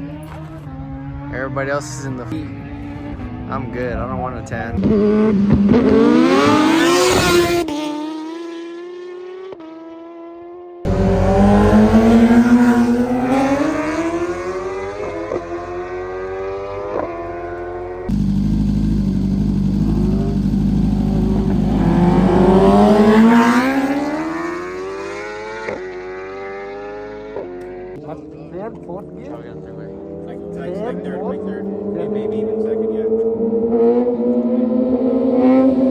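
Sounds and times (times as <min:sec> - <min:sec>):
vehicle engines revving at full throttle: 0:00.0 - 0:35.9.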